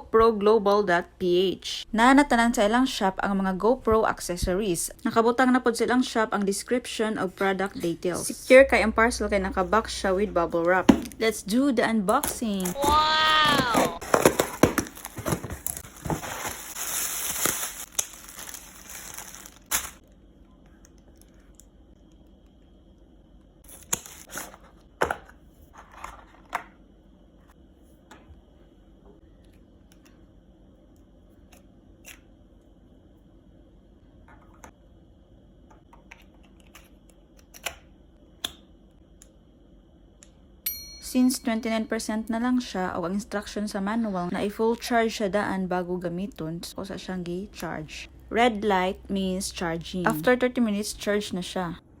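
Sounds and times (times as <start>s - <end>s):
packaging tearing and crinkling: 12.2s - 20.1s, 23.7s - 24.6s.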